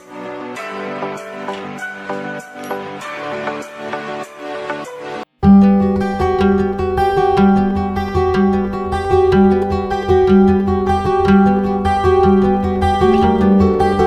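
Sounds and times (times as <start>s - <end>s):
plucked guitar piece: 5.4s - 14.0s.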